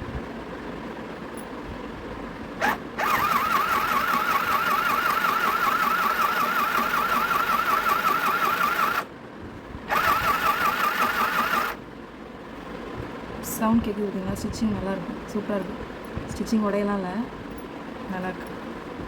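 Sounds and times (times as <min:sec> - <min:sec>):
sewing machine running: 0:02.6 - 0:09.1, 0:09.9 - 0:11.8.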